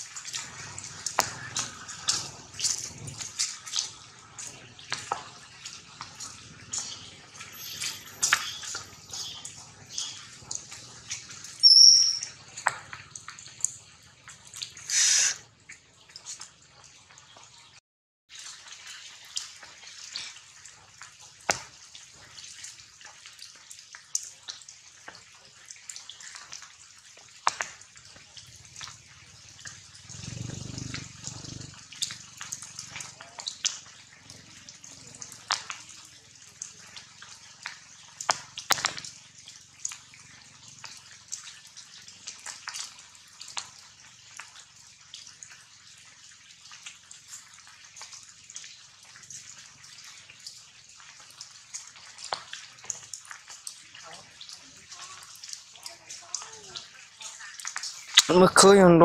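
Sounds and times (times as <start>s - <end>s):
splash or rustle: 0.0s - 17.5s, 18.3s - 58.8s
rain dripping on leaves: 0.0s - 59.0s
sharp high squeak: 7.5s - 9.5s, 11.6s - 12.4s.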